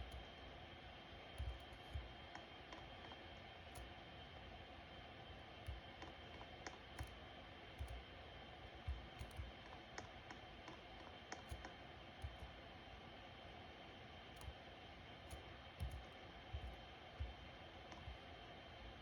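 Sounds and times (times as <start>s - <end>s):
ceiling fan whirring: 0.0s - 19.0s
light fan clicks: 8.9s - 12.6s, 14.4s - 14.6s.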